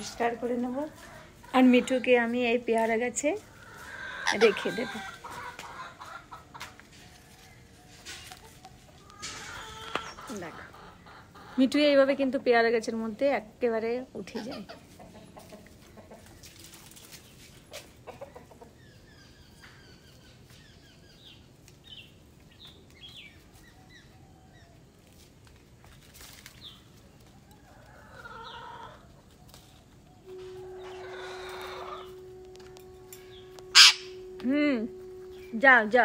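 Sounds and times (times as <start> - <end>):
chickens clucking: 0.0 - 12.4, 14.2 - 20.6, 25.5 - 36.0
high bird chirps: 30.2 - 36.0
low hum: 30.2 - 36.0.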